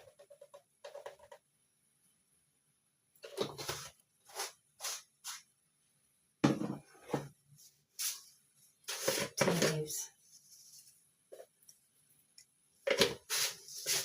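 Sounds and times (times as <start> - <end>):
scrape: 3.6 - 5.5, 6.9 - 11.0, 13.0 - 14.0.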